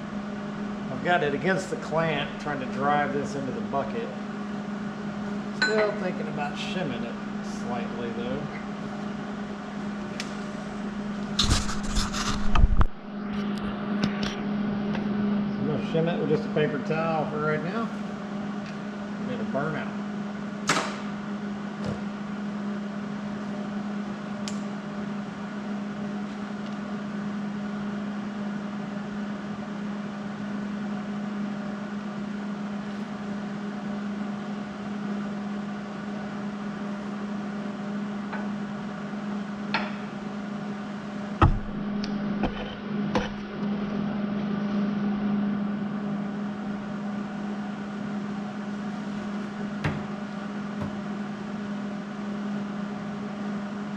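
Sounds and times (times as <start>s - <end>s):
machine hum: 0.0s - 53.9s.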